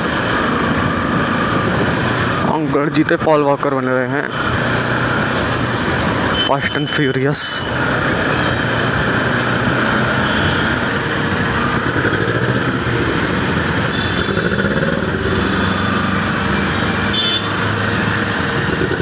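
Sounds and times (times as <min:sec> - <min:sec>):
traffic noise: 0:00.0 - 0:19.0
motorcycle engine running: 0:10.3 - 0:19.0.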